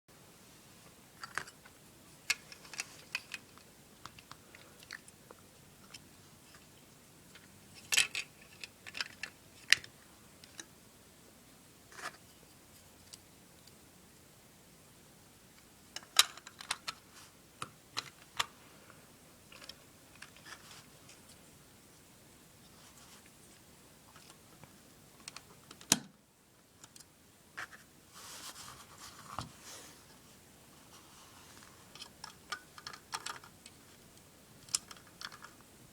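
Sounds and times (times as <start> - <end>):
plastic pieces clicking and rattling: 2.3 - 5.2, 7.3 - 10.7, 16.0 - 17.0, 31.9 - 33.8, 34.6 - 35.6.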